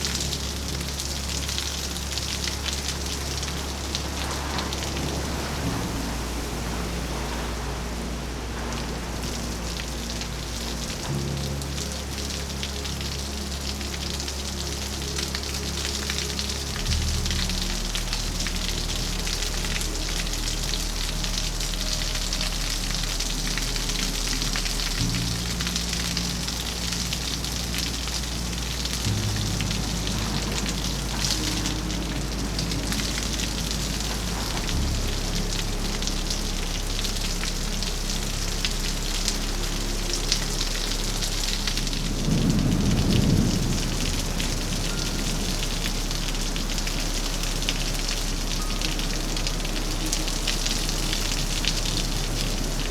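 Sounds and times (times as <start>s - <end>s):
heavy rain falling: 0.0s - 52.9s
soft music of low notes: 0.0s - 52.9s.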